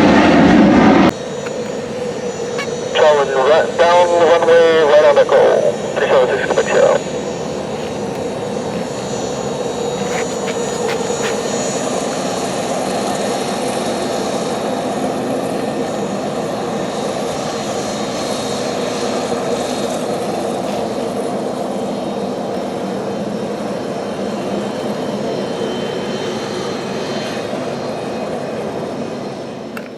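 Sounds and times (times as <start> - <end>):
jet engines roaring: 0.0 - 29.9.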